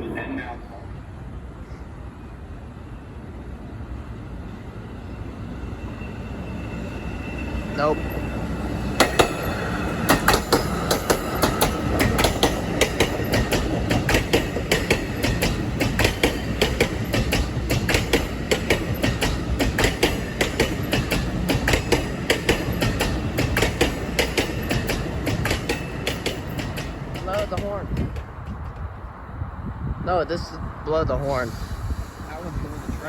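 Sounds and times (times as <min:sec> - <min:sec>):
train wheels clattering on rail joints: 0:08.9 - 0:29.1.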